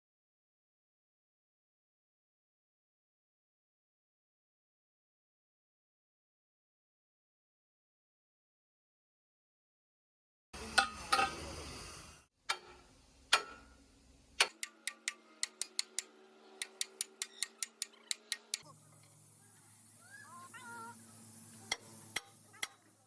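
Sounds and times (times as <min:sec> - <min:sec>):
hammer tapping on steel: 0:12.5 - 0:13.7, 0:14.4 - 0:18.6.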